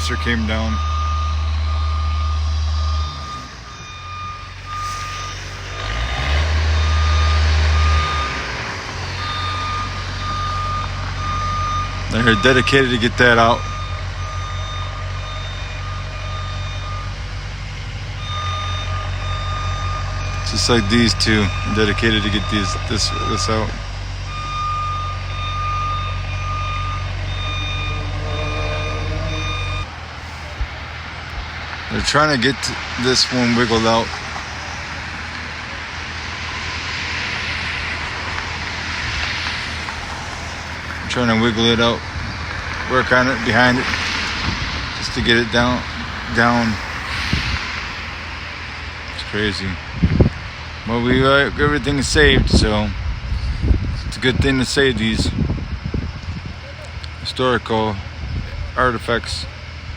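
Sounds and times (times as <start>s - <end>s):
backup alarm beeping: 0.0s - 30.6s, 41.1s - 47.4s
diesel engine running: 0.0s - 59.9s.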